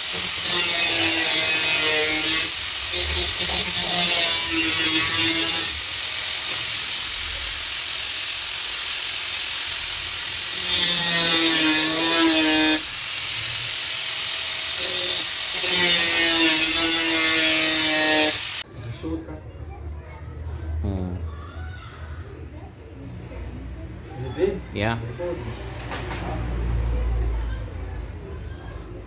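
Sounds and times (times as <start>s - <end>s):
angle grinder cutting steel: 0.0s - 18.6s.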